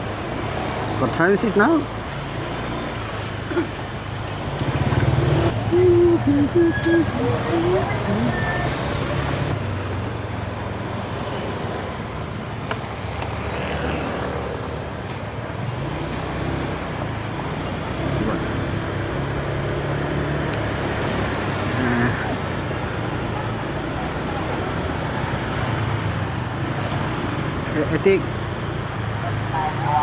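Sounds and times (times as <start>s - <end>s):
city traffic noise: 0.0s - 30.0s
scooter engine running: 4.5s - 8.8s.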